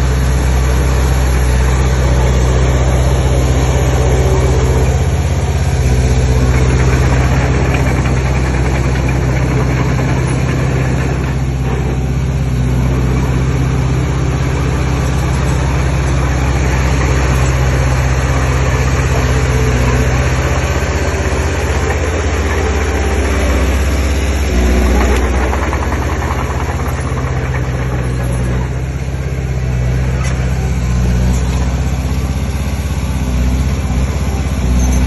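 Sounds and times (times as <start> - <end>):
heavy diesel engine running: 0.0 - 35.0.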